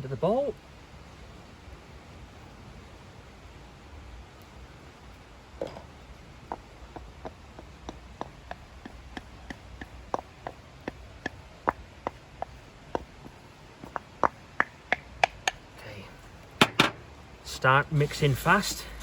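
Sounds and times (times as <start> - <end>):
stirring and scraping chocolate: 7.0 - 15.9.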